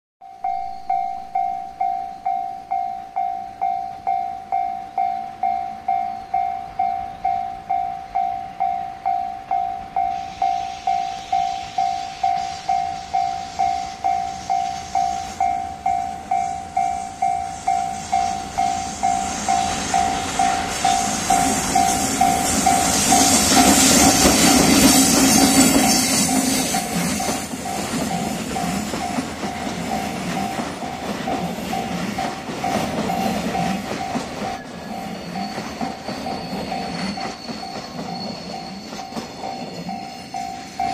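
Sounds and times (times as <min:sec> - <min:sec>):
electric locomotive approaching: 0:00.2 - 0:40.9
level crossing warning bell ringing: 0:00.2 - 0:40.9
train wheels clattering over rail joints: 0:18.6 - 0:40.9.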